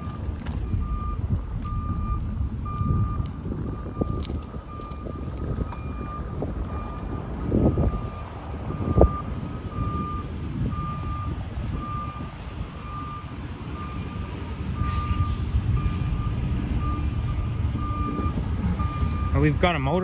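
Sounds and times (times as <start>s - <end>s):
short low thumps: 0.0s - 12.0s
low rumble of engines and traffic: 0.0s - 20.0s
vehicle reversing alarm beeping: 0.0s - 20.0s.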